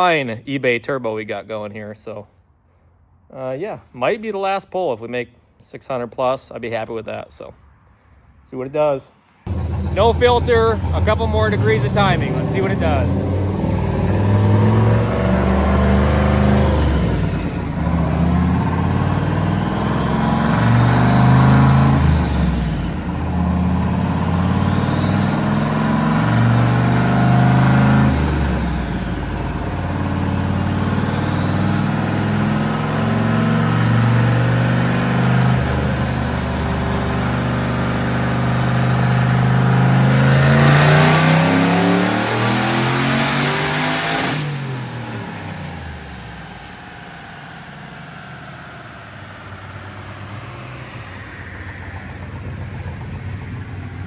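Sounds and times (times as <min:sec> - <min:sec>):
faint high turbo whine: 0:09.5 - 0:41.0, 0:44.2 - 0:54.0
truck engine at full throttle: 0:09.5 - 0:54.0.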